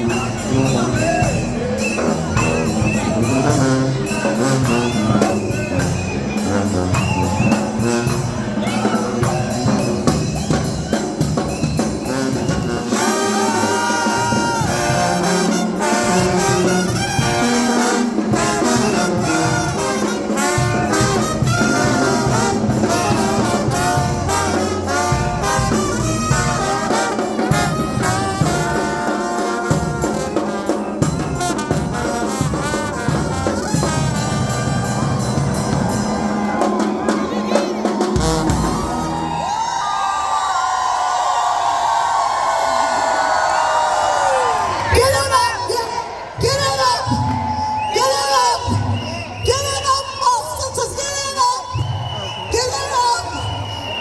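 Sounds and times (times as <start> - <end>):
brass band playing: 0.0 - 40.1.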